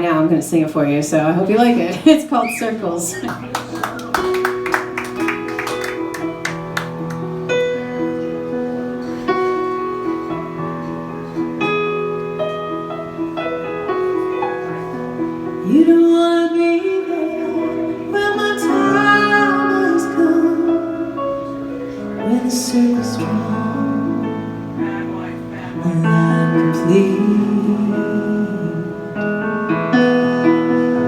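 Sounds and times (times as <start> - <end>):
woman singing: 15.6 - 21.2, 22.2 - 24.6, 25.8 - 29.2.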